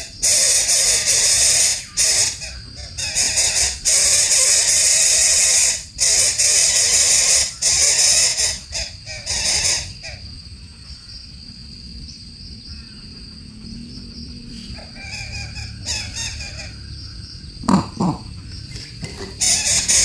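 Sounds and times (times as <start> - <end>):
bird screeching: 0.0 - 10.2, 14.8 - 16.8, 17.6 - 20.0.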